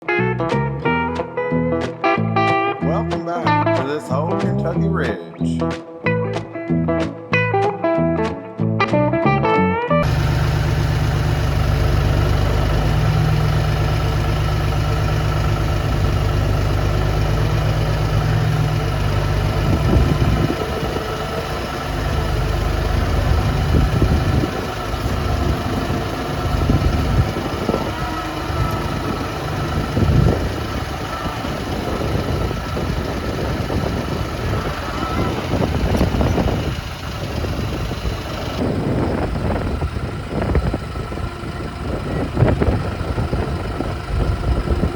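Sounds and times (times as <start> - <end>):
vehicle engine running: 10.0 - 44.9.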